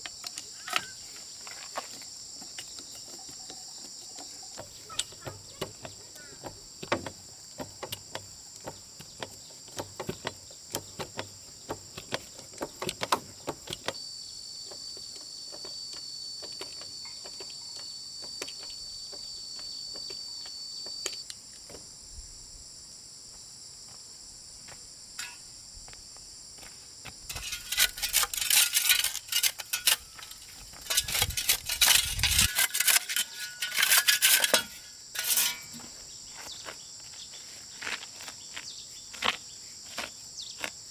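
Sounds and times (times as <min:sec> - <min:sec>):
insects chirring: 0:00.0 - 0:40.9
metallic clicking and clattering: 0:27.3 - 0:35.8.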